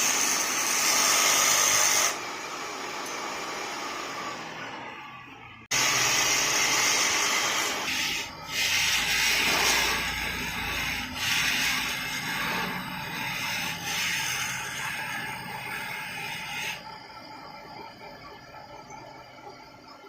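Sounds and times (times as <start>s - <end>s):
tool scraping spinning wood: 5.7s - 17.0s.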